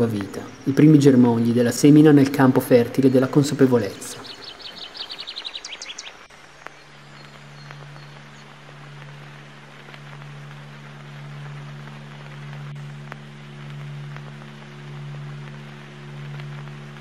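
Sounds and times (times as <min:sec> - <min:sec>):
bird chirping: 0:00.0 - 0:08.7
low steady drone: 0:00.0 - 0:17.0.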